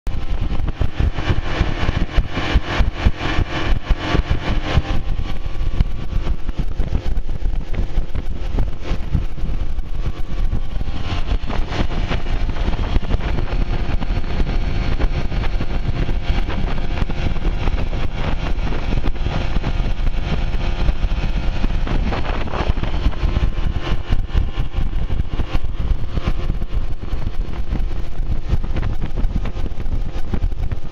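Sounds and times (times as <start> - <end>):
outboard motor running: 0.1 - 30.9.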